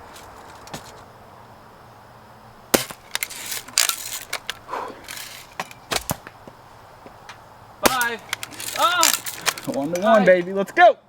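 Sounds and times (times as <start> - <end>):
gun and slingshot shots snapping: 2.8 - 6.3, 7.8 - 10.3
shots hitting small targets: 7.8 - 9.5.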